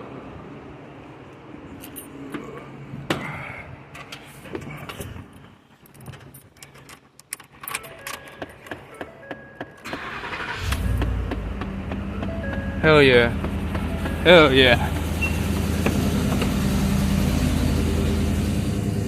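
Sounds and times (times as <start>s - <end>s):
keys jangling and clicking: 1.8s - 2.2s, 5.9s - 9.1s
engine starting with low rumble: 9.8s - 19.0s
short electronic beeps: 15.1s - 15.5s.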